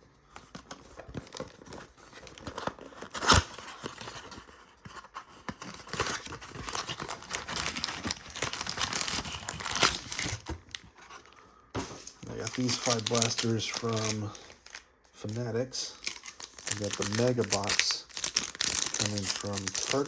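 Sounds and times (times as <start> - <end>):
packaging tearing: 0.9 - 4.6, 5.6 - 10.8, 12.3 - 14.8, 15.4 - 20.0
plastic foil wrappers crinkling: 5.8 - 11.4, 12.0 - 20.0.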